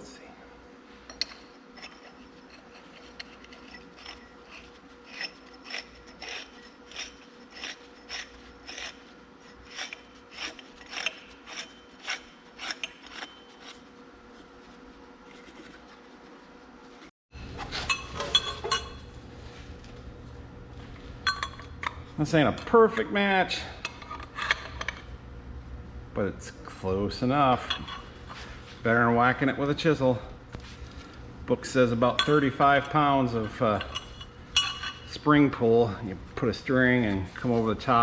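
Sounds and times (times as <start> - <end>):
scraping strokes on steel: 1.7 - 17.1, 31.7 - 35.3.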